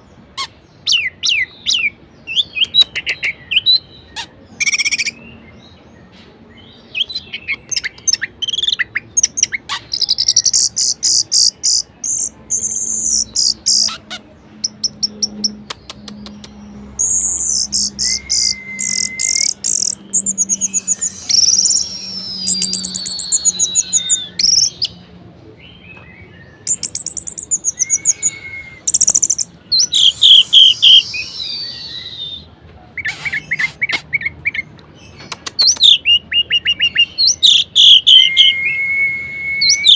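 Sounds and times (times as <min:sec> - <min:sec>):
thrush singing: 0:12.6 - 0:25.0, 0:26.8 - 0:32.5.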